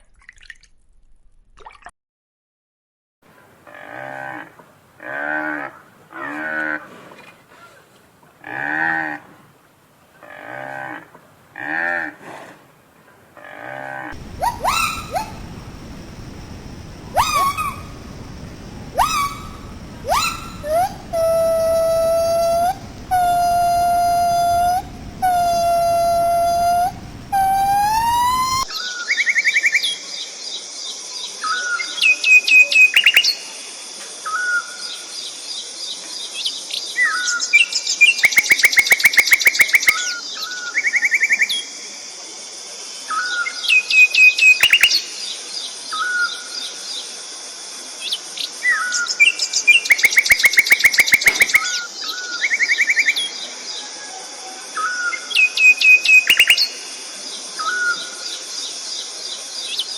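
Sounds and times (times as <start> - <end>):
steady high hiss: 14.2 - 28.7
songbird chirps and trills: 14.2 - 33.4, 34.3 - 41.8, 43.1 - 47.0, 48.0 - 59.9.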